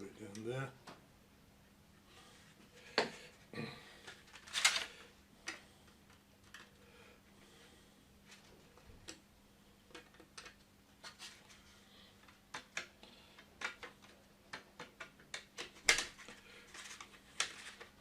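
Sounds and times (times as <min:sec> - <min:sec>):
plastic parts clicking: 0:04.0 - 0:06.8, 0:09.9 - 0:11.5, 0:12.2 - 0:18.0.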